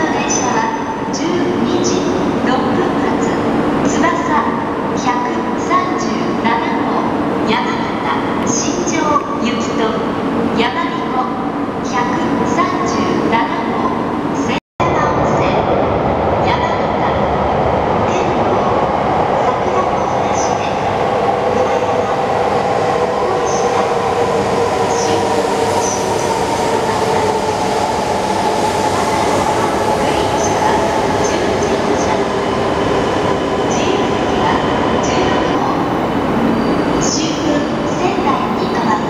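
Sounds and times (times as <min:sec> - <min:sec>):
train wheels and air rushing: 0:20.4 - 0:38.5.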